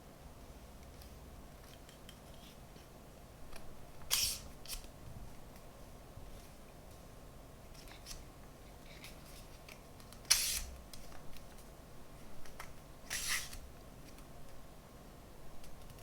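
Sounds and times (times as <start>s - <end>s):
sharp scraping or tearing: 10.3s - 10.7s, 13.1s - 13.6s.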